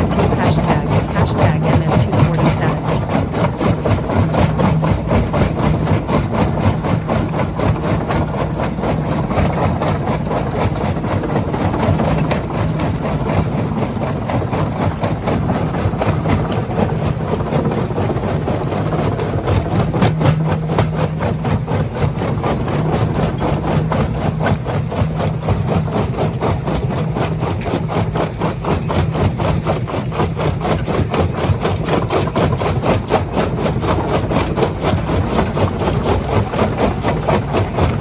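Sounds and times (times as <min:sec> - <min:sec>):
diesel engine drone: 0:00.0 - 0:28.6
fast even clatter: 0:00.0 - 0:38.0.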